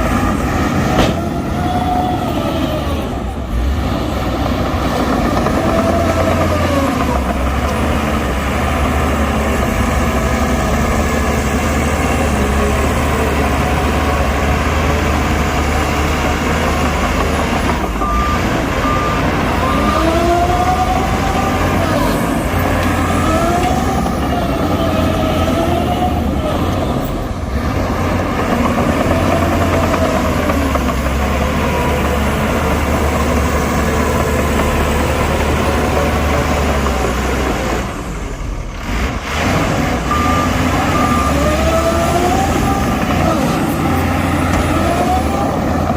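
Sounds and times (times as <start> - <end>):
diesel machinery engine rumble: 0.0 - 45.9
short beeps: 18.0 - 19.3.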